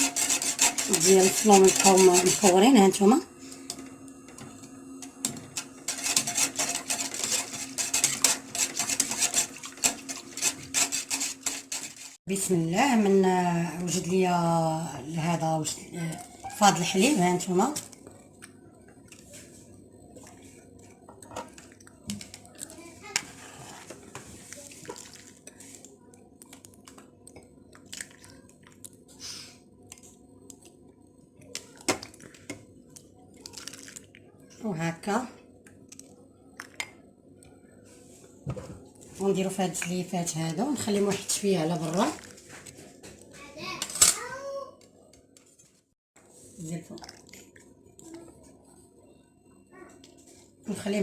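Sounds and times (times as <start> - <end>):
utensils and dishes clicking: 0.0 - 12.2
whisk scraping against pot: 0.0 - 12.3, 23.2 - 24.5.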